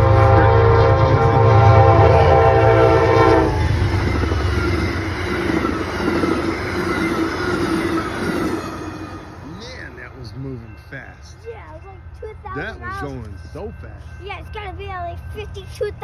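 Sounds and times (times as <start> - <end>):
train horn: 0.0 - 7.2
train rushing and rattling past: 0.0 - 16.0.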